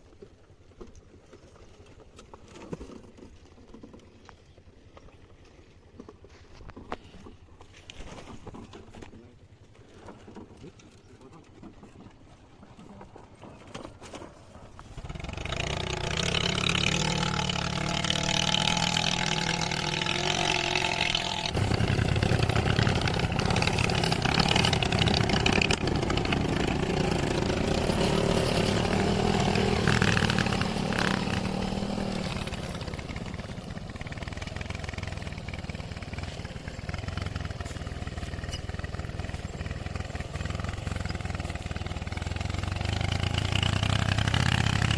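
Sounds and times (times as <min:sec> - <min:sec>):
motorcycle engine running: 0:15.0 - 0:44.9.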